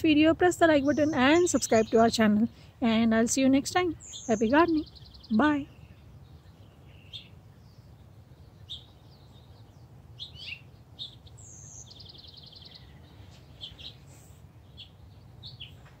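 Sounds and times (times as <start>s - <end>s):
small songbirds chirping: 0.0s - 16.0s
rapid bird trill: 4.0s - 15.8s.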